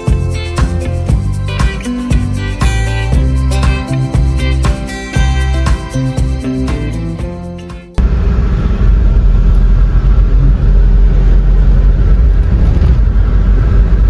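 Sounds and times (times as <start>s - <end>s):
background music: 0.0s - 8.0s
moving car rumbling: 8.0s - 14.0s.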